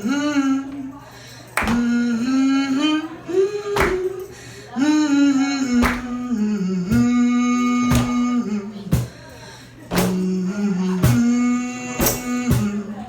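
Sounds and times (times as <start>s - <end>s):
person singing wordless notes: 0.0s - 13.0s
sharp percussive hits: 12.0s - 12.7s.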